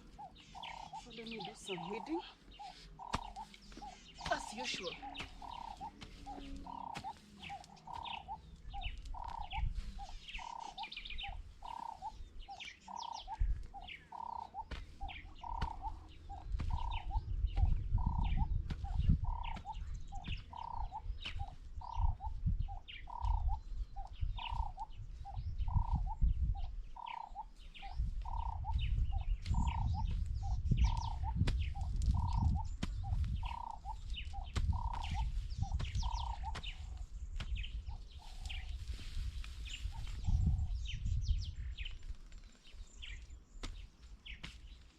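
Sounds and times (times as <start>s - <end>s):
birds chirping: 0.0s - 44.9s
low thumps on microphone: 14.6s - 23.6s, 27.8s - 38.0s.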